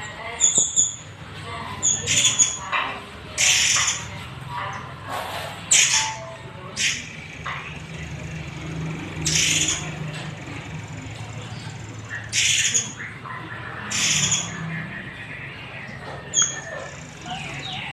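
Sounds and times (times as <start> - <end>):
bird harsh rasping calls: 1.8 - 2.8, 3.4 - 4.2, 5.1 - 15.0.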